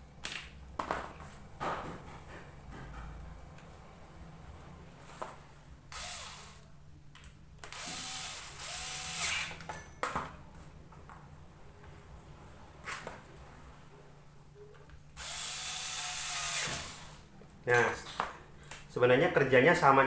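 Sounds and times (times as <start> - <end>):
power drill whirring: 5.9 - 6.7, 7.6 - 9.7, 15.2 - 17.3.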